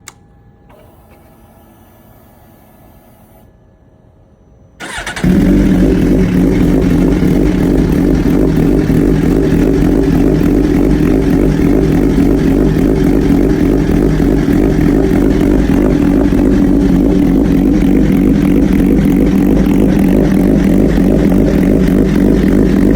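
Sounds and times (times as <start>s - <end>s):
starter motor cranking: 4.8s - 21.0s
motorcycle engine idling: 4.8s - 22.9s.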